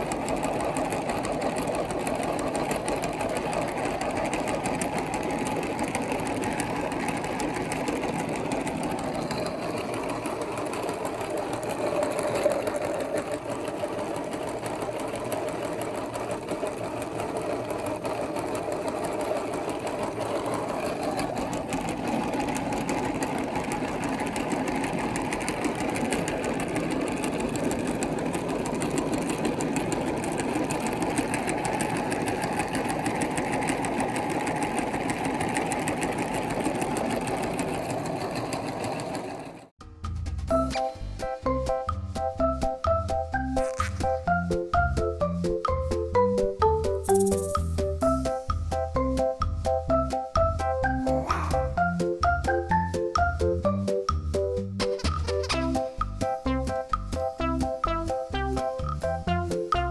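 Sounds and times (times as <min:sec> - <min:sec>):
electric meat grinder motor: 0:00.0 - 0:39.7.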